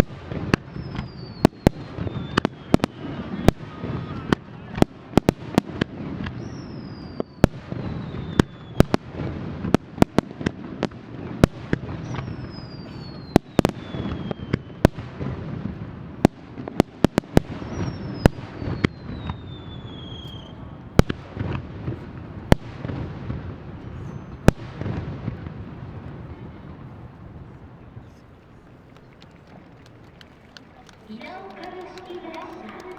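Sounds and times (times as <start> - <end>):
falling firework whistle: 0.0 - 4.4, 6.2 - 9.0, 12.0 - 15.0, 17.6 - 20.8
fireworks cracks and bangs: 0.0 - 32.9.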